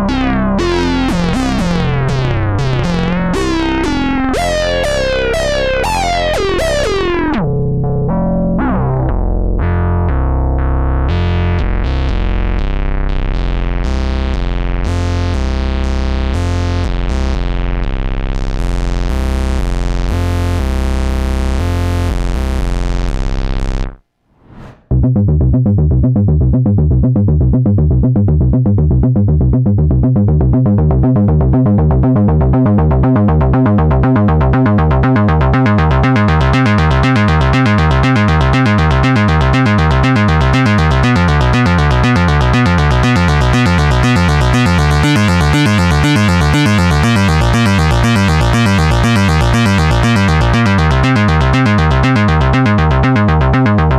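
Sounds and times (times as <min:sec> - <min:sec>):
synthesizer bright notes pattern: 0:00.0 - 0:09.3, 0:32.5 - 0:53.9
repeating synth bass sequence: 0:00.0 - 0:18.1, 0:31.3 - 0:53.9.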